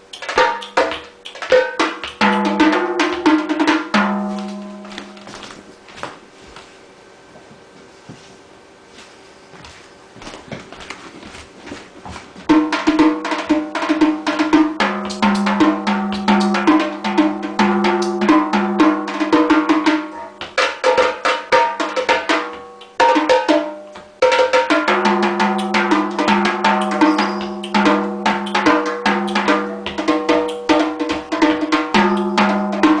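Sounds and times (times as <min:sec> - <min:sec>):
fast drum strokes: 0:00.0 - 0:05.4, 0:12.4 - 0:33.0.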